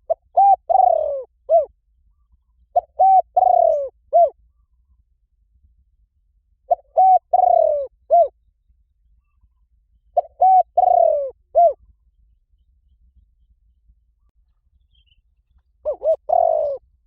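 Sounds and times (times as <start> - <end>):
dove cooing: 0.0 - 4.6, 6.7 - 8.4, 10.2 - 11.9, 15.8 - 17.0.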